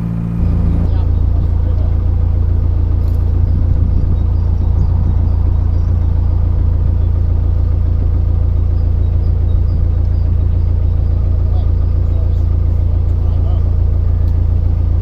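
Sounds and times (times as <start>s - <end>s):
boat engine running: 0.0s - 15.0s
wind buffeting microphone: 3.2s - 7.4s.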